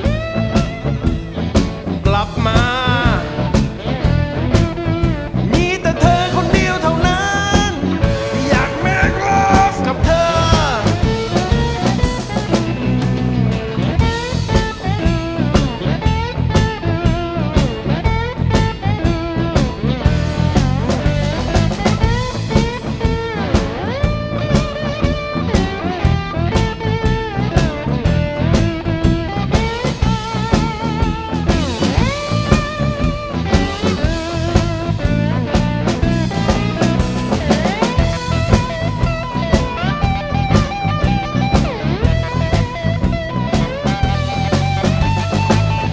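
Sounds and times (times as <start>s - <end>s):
bass guitar: 0.0s - 45.9s
blues guitar solo: 0.0s - 45.9s
drum kit: 0.0s - 45.9s.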